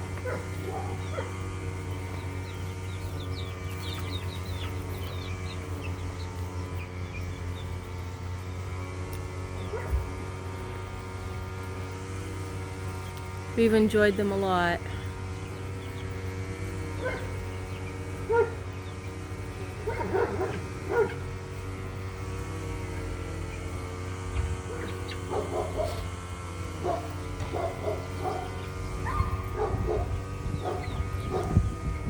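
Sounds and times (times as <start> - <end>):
dogs barking and yipping: 0.0 - 8.0, 9.6 - 10.8, 16.8 - 22.0, 22.8 - 32.0.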